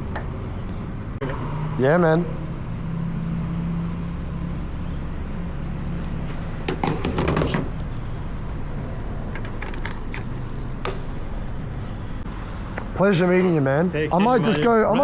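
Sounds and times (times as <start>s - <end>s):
rustling scrape: 6.0s - 7.7s.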